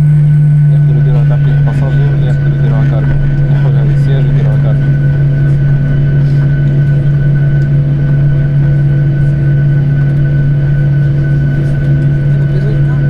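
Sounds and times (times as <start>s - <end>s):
constant whining tones: 0.0s - 13.0s
jet engine cabin drone: 0.0s - 13.0s.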